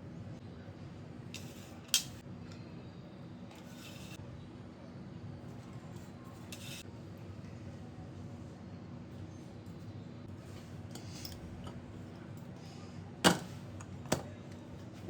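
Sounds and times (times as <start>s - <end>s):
utensil scraping cookware: 3.5s - 4.2s, 6.4s - 6.9s.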